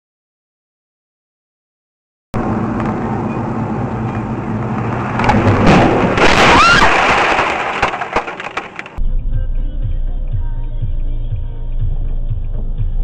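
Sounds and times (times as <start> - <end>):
rumbling road and vehicle noise: 2.4 - 10.8.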